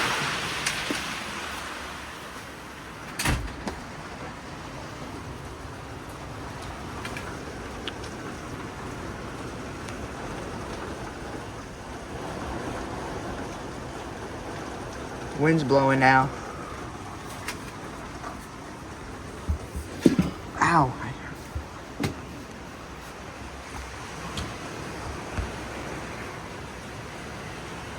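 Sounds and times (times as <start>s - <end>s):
steady rain hiss: 0.0s - 27.9s.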